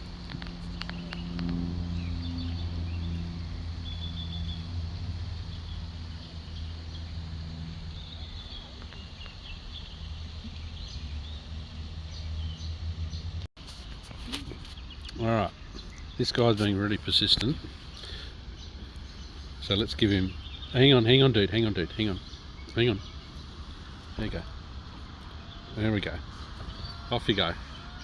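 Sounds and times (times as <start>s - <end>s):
low mechanical hum: 0.0s - 28.0s
faint high bird chirps: 0.8s - 4.8s.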